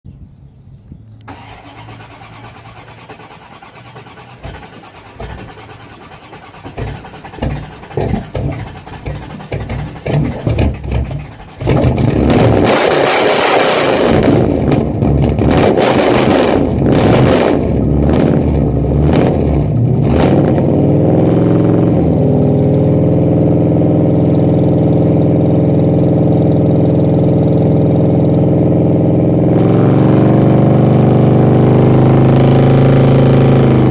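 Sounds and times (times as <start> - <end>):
starter motor cranking: 1.3 - 12.1
car engine revving and idling: 1.3 - 33.9.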